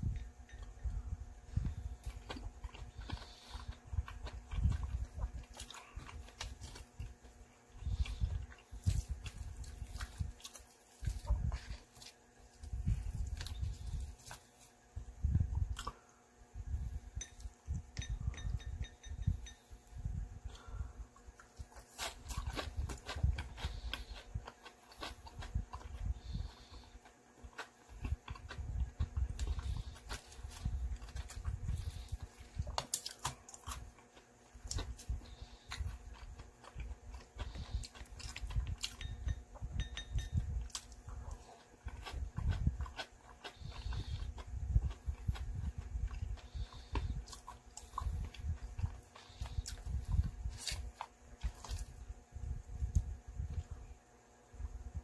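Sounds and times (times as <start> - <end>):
chewing mouth sounds: 1.6 - 14.5, 21.2 - 52.0
chopsticks clinking on ceramic bowl: 39.0 - 40.4.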